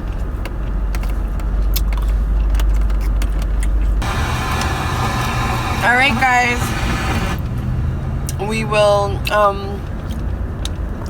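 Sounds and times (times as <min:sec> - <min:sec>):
car cabin rumble: 0:04.0 - 0:07.4.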